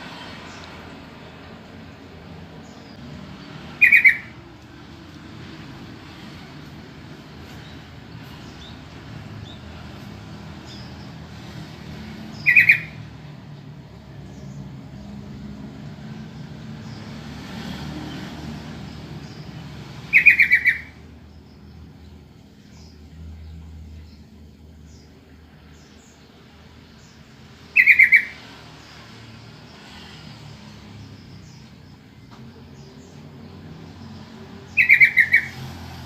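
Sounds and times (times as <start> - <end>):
bird calls: 2.6 - 11.3, 12.2 - 13.1, 19.2 - 23.0, 27.0 - 28.6, 31.0 - 35.8.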